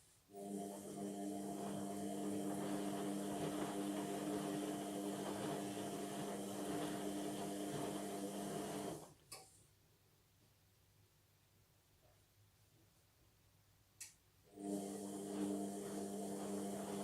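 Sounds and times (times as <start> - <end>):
washing machine humming: 0.3 - 9.1, 14.5 - 17.0.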